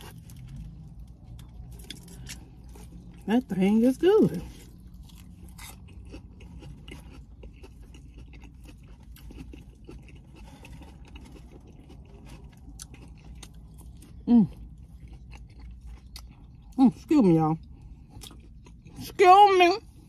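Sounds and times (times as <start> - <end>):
quiet chewing: 0.0 - 3.3, 4.3 - 16.8, 17.6 - 19.1
woman speaking: 3.2 - 4.5, 16.8 - 17.6, 19.0 - 19.9.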